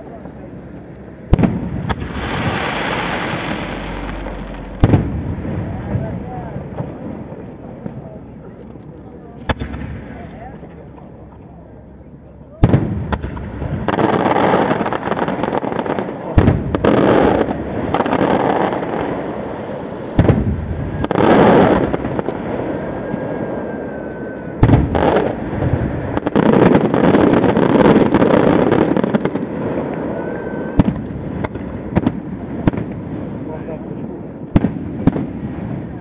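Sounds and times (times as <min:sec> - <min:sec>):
dense crackling: 0:00.7 - 0:07.9
sharp firework bangs: 0:01.3 - 0:06.2, 0:12.6 - 0:22.7, 0:24.6 - 0:33.0.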